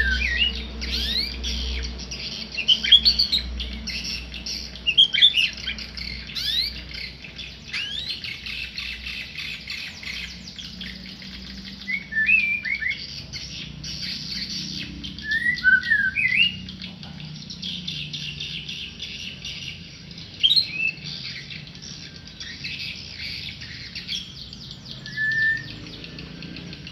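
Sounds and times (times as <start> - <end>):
songbird whistling phrases: 0.0 - 4.3, 4.9 - 6.8, 7.7 - 16.8, 20.4 - 26.2
high twittering: 0.0 - 26.9.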